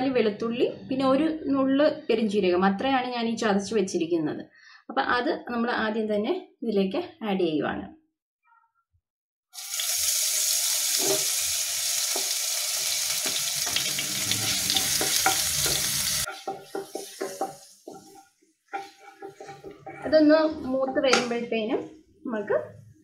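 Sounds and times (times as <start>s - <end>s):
paste sizzling in hot oil: 9.6s - 20.1s.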